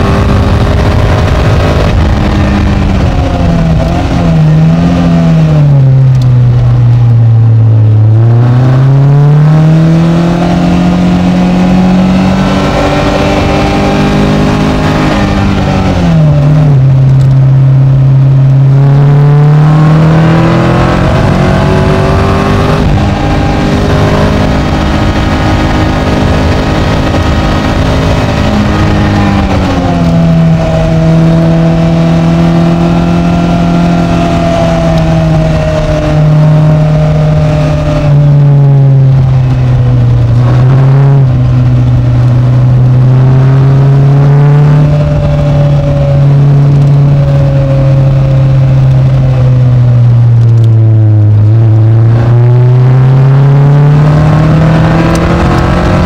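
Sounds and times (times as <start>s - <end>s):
wind rushing: 0.0s - 5.5s
car engine revving and shifting: 0.0s - 56.0s.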